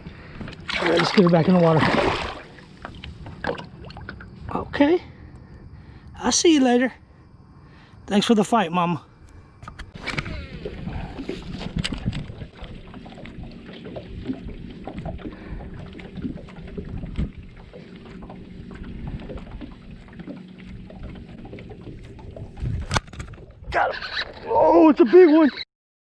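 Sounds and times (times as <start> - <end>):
water sounds: 0.0 - 5.0, 9.7 - 25.6
low steady hum: 9.0 - 23.7
knocks and clicks on a kayak: 11.2 - 23.5.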